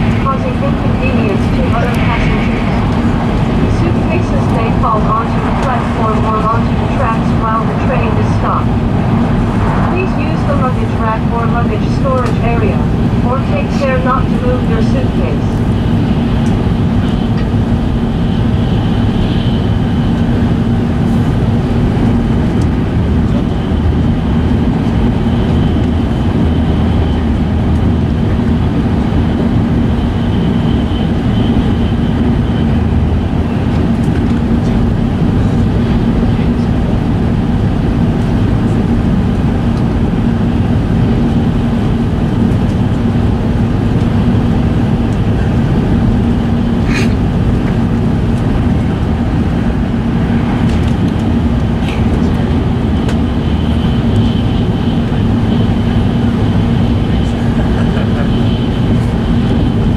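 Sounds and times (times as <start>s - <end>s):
faint high whine: 0.0s - 21.2s
constant low hum: 0.0s - 59.9s
train wheels rumbling on track: 0.0s - 59.9s.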